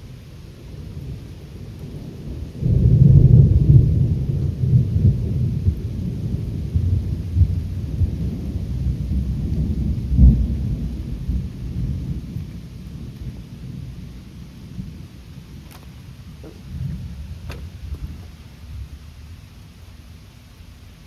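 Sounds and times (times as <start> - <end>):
thunder rumbling: 0.0 - 20.2
rain hissing: 0.0 - 21.0.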